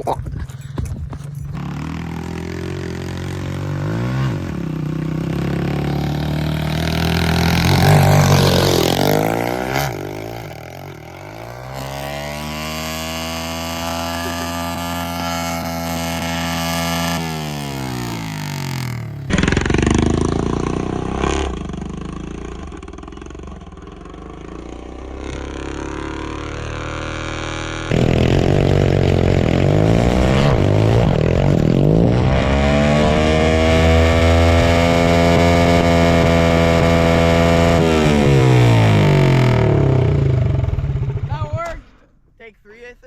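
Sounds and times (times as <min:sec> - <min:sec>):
dirt bike engine revving: 0:00.6 - 0:42.1.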